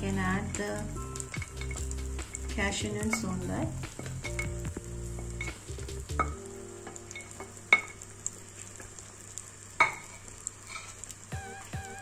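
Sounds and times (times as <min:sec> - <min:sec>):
omelette sizzling: 0:00.0 - 0:12.0
ringing taps on pan: 0:06.2 - 0:08.0.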